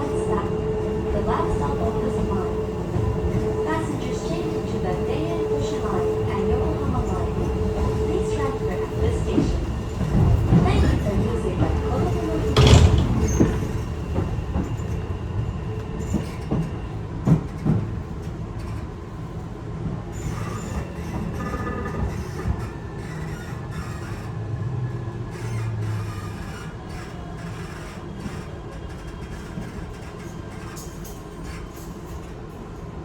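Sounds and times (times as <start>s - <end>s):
train running rumble: 0.0s - 33.0s
clunks over rail joints: 5.4s - 14.8s.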